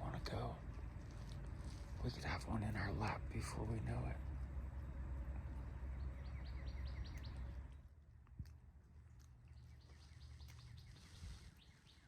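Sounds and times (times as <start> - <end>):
songbird trilling: 5.9 - 7.6.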